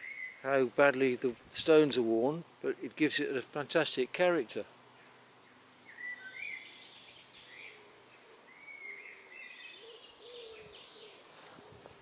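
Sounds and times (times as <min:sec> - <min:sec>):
birds chirping: 0:00.0 - 0:01.8, 0:04.9 - 0:11.4
faint low bird calls: 0:04.9 - 0:12.0.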